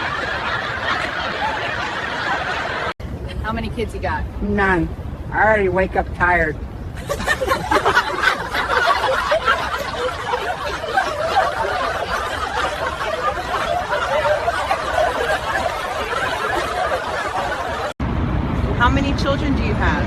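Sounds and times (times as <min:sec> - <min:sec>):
group of people laughing: 0:00.0 - 0:03.0, 0:06.9 - 0:18.0.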